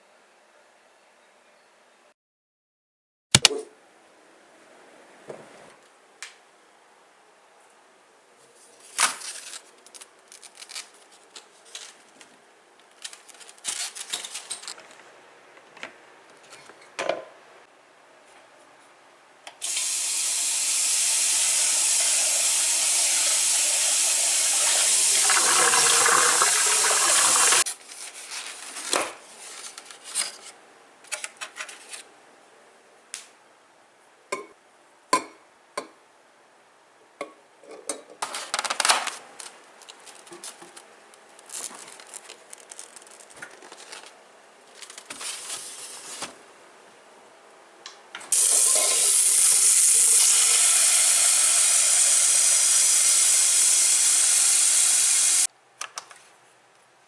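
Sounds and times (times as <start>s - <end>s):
water running: 19.6s - 27.6s, 48.3s - 55.5s.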